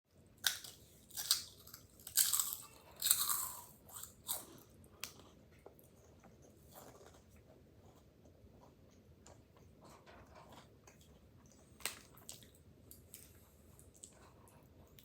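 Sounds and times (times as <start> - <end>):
snack crunching while chewed: 0.4 - 5.9, 9.2 - 15.0.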